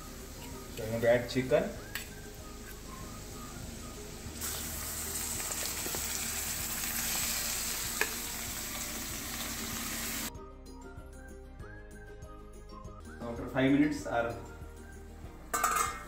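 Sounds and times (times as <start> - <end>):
chicken sizzling in hot oil: 0.0 - 10.3.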